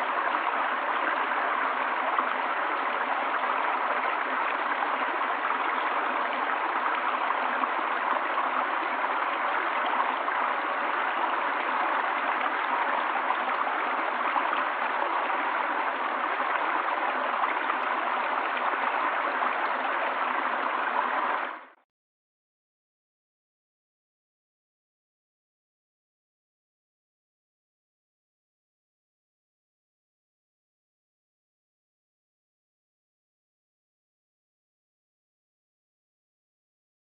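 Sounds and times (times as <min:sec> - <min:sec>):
stream water flowing: 0:00.0 - 0:21.8.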